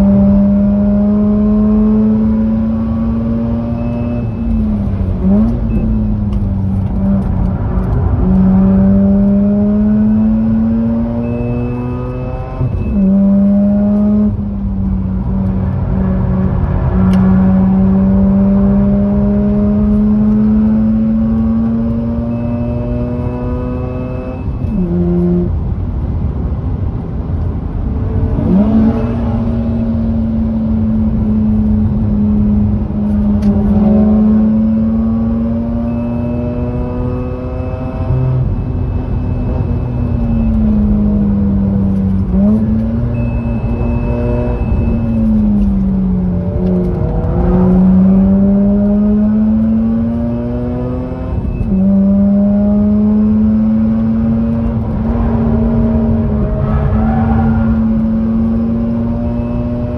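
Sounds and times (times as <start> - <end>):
rotary engine at high revs: 0.0 - 4.4, 8.2 - 14.4, 17.1 - 25.5, 33.2 - 59.9.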